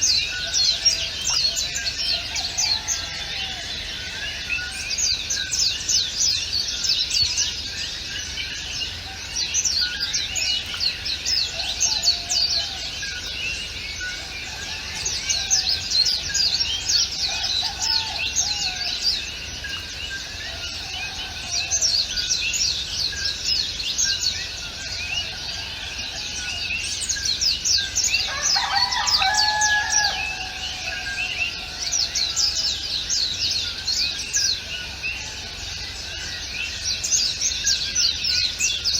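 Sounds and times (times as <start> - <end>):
lower bird call: 0.0 - 38.9
songbirds chirping: 0.0 - 38.9.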